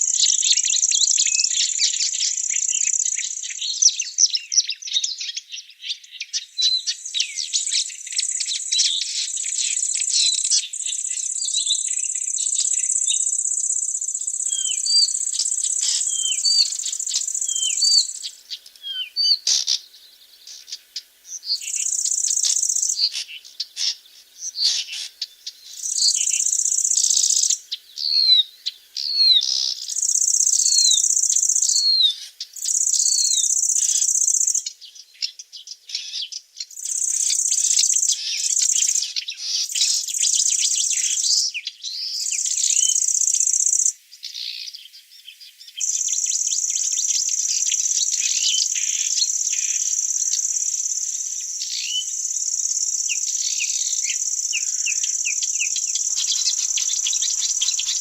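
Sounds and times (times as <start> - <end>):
high insect trill: 7.1 - 34.7, 36.7 - 41.5, 42.2 - 44.0, 45.7 - 58.0
bird call notes: 11.2 - 27.6, 53.1 - 58.0.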